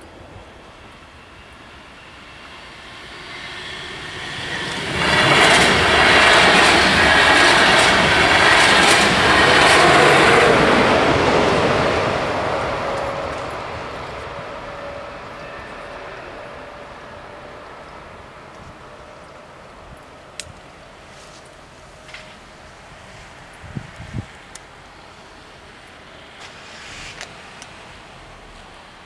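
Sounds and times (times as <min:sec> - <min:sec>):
train wheels clicking: 0:00.0 - 0:16.4
passenger train passing: 0:00.0 - 0:29.0.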